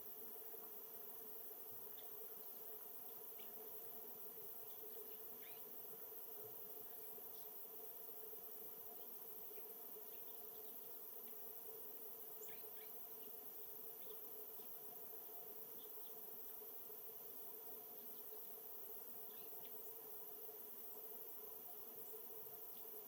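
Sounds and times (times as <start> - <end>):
steady low hum and hiss: 0.0 - 23.0
bird chirps and calls: 5.4 - 5.7.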